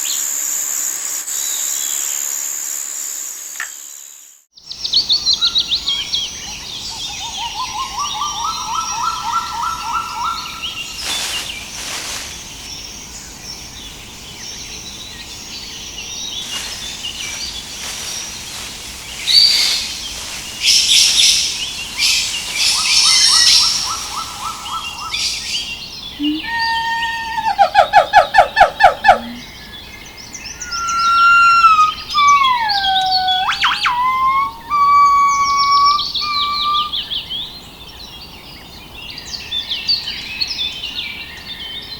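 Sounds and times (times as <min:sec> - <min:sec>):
birds chirping and trilling: 0:04.7 - 0:41.9
bird rapid climbing notes: 0:30.6 - 0:37.0.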